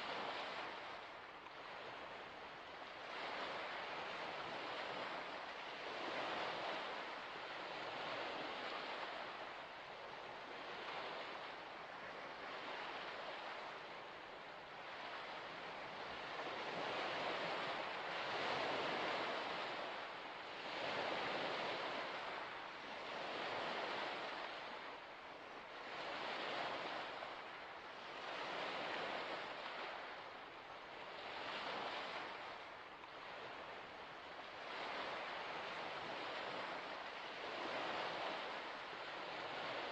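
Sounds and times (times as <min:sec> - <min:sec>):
small waves washing onto shore: 0:00.0 - 0:39.9.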